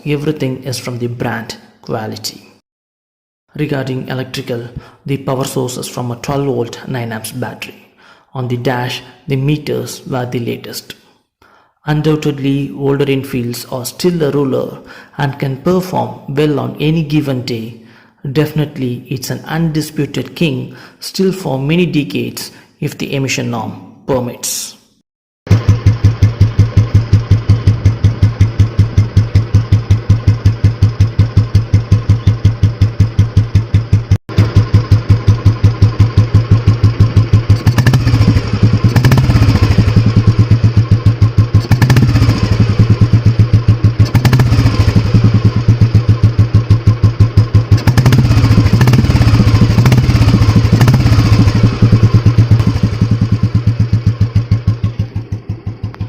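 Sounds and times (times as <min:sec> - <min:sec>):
motorcycle engine idling and revving: 0:25.5 - 0:56.0.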